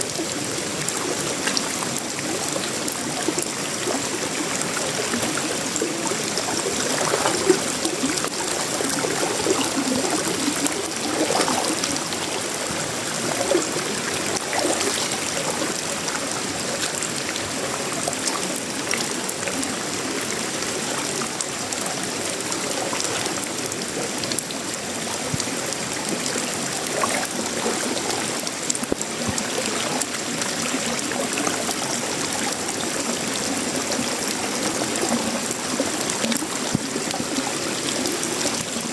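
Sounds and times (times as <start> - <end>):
rain on metal roofing: 0.0 - 38.9.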